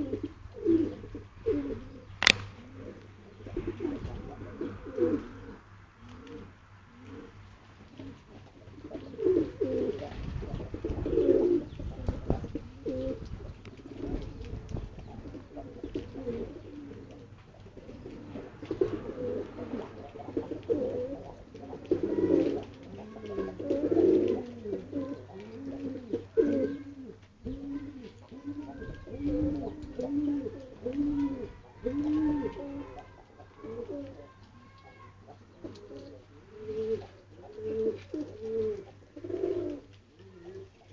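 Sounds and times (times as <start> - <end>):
pigeons cooing: 0.0 - 40.9.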